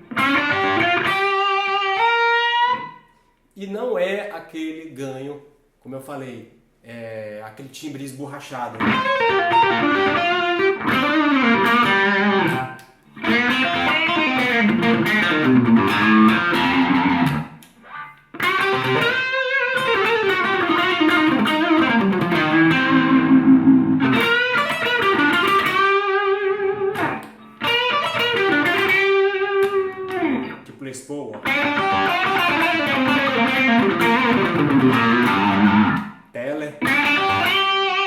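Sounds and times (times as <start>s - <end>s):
overdriven electric guitar: 0.0s - 3.1s, 8.8s - 30.7s, 31.3s - 36.2s, 36.8s - 38.0s.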